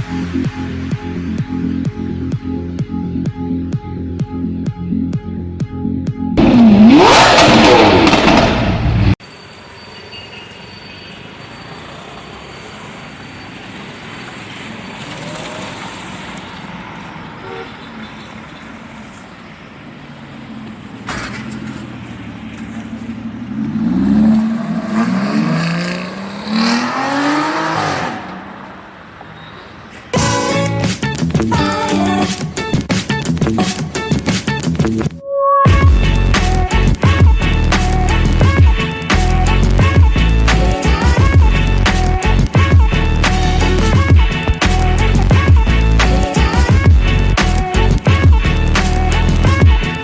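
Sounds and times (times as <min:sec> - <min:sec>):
street noise: 0:00.0 - 0:50.0
sports car engine revving: 0:06.4 - 0:09.2, 0:22.6 - 0:28.5.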